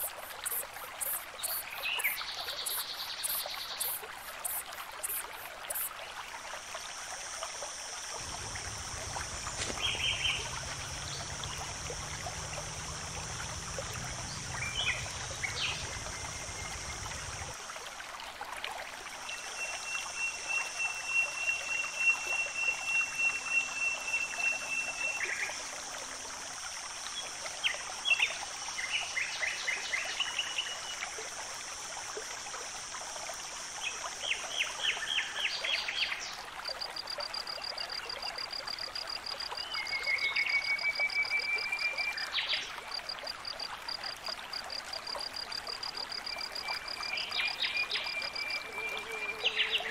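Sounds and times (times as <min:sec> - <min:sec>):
running water: 0:00.0 - 0:49.9
low hum: 0:08.2 - 0:17.6.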